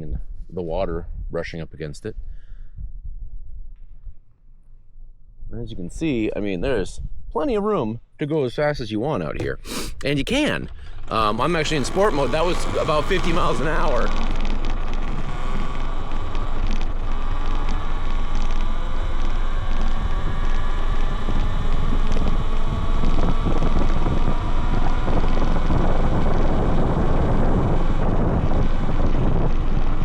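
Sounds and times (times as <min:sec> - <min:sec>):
wind rushing over microphone: 0:00.0 - 0:04.3, 0:05.4 - 0:07.9, 0:09.3 - 0:30.0
faint electric motor whine: 0:09.4 - 0:30.0.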